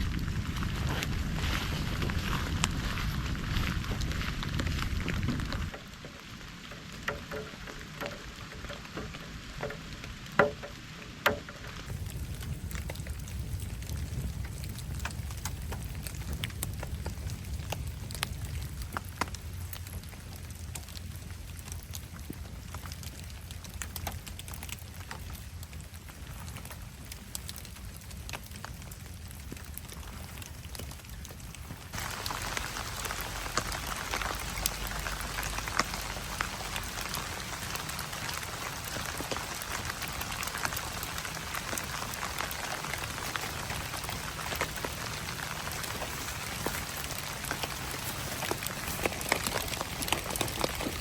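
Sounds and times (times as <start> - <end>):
campfire crackling and popping: 0.0 - 51.0
rain hiss: 0.0 - 51.0
patter of fine ticks: 11.7 - 51.0.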